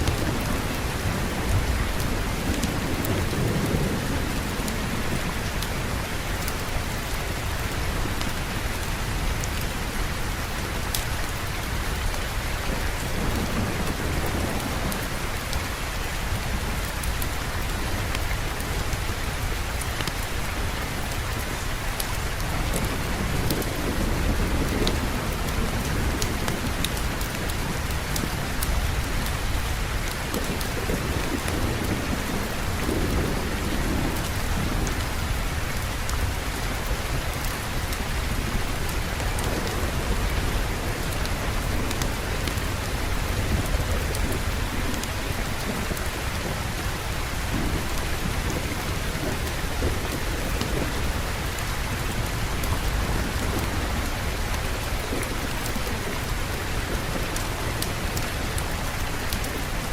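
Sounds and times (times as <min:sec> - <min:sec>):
heavy rain falling: 0:00.0 - 0:59.9
thunder rumbling: 0:22.4 - 0:59.9.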